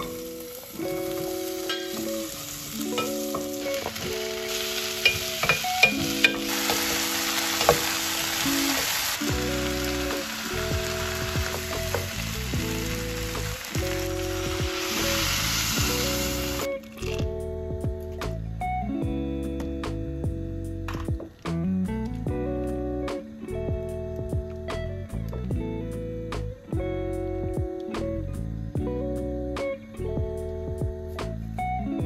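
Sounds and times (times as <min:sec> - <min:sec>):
vegetables sizzling in a pot: 0:00.0 - 0:17.2
soft background music: 0:00.0 - 0:32.0.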